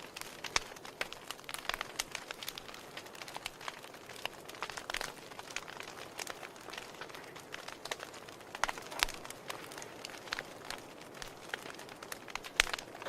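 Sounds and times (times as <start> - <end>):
hiss of flames: 0.0 - 13.0
wood fire crackling: 0.0 - 13.0.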